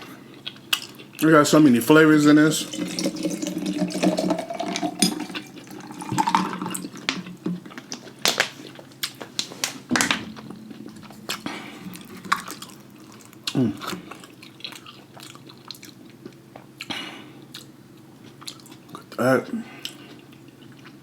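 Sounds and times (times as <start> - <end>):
liquid pouring into container: 2.4 - 7.4.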